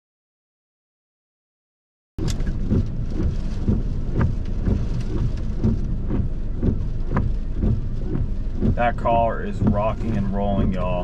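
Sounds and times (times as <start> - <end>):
constant deep rumble: 2.2 - 11.0
heavy rain battering a car: 2.2 - 11.0.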